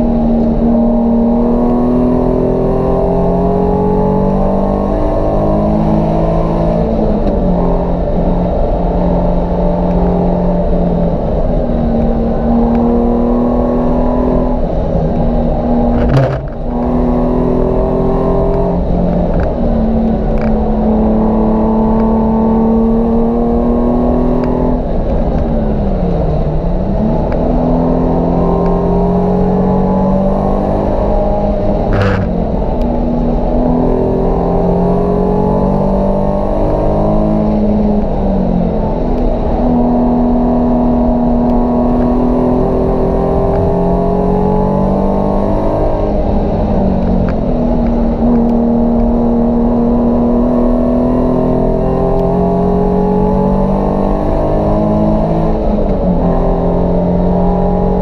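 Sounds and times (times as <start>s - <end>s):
car engine revving through gears: 0.0s - 58.0s.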